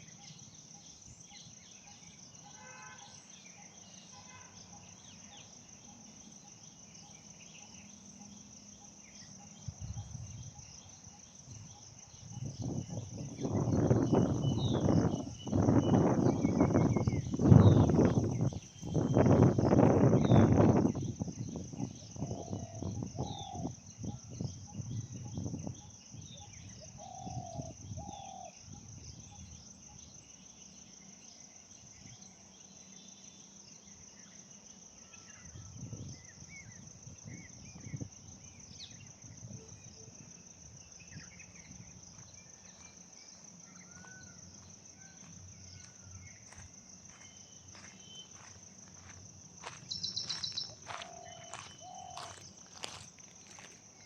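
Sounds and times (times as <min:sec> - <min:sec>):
insects droning: 0:00.0 - 0:54.0
low arched bird calls: 0:41.0 - 0:53.7
bird chirps: 0:45.0 - 0:53.7.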